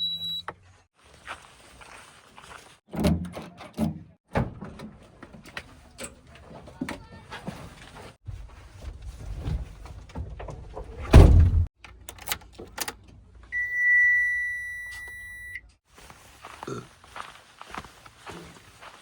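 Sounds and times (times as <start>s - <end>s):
high-pitched beep: 0.0s - 0.4s, 13.6s - 15.6s
heavy thud: 11.1s - 11.7s.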